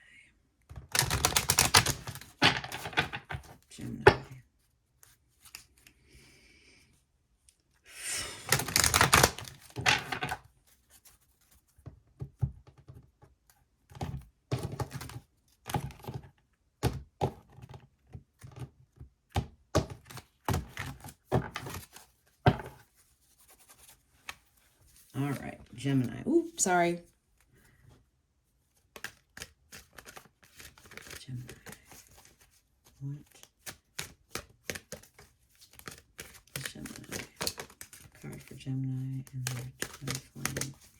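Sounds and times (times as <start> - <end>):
cards being shuffled: 0.9 - 4.4, 5.0 - 5.9, 8.2 - 11.8, 20.0 - 26.6, 28.7 - 40.9.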